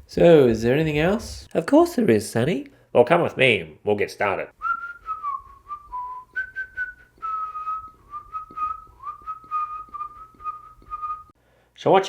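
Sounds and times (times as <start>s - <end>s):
person whistling a tune: 4.6s - 11.3s.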